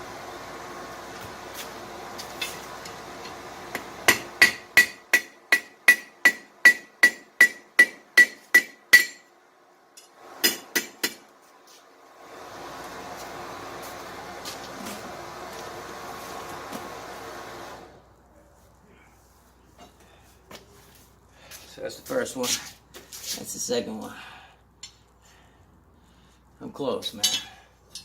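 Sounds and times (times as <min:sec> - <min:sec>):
hammer striking steel on anvil: 0:03.8 - 0:09.3, 0:10.4 - 0:11.2.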